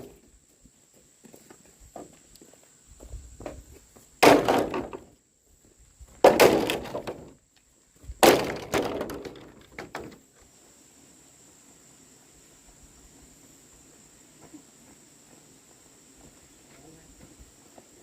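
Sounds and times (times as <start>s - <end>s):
hard objects crashing and rattling: 4.2s - 5.1s, 6.2s - 7.4s, 8.2s - 10.2s.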